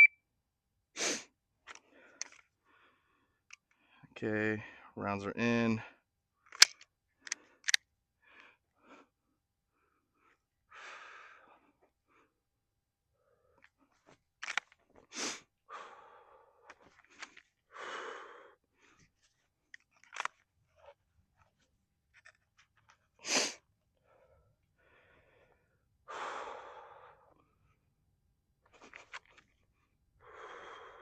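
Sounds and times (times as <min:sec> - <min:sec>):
person breathing and sniffing: 0:01.0 - 0:01.3, 0:15.0 - 0:19.4, 0:23.2 - 0:23.6
small clicks: 0:06.5 - 0:07.8, 0:14.4 - 0:14.8.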